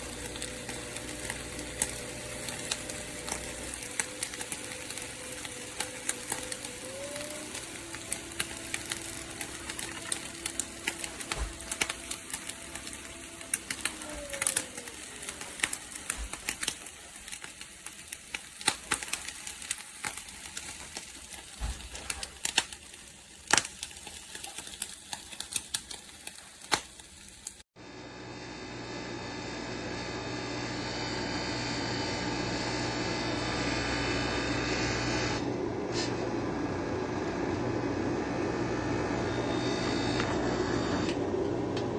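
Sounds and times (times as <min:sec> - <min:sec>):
coffee machine motor hum: 0:00.0 - 0:25.3, 0:27.4 - 0:41.9
coffee machine brewing: 0:00.0 - 0:27.6
crackling irregular clicks: 0:00.0 - 0:27.6.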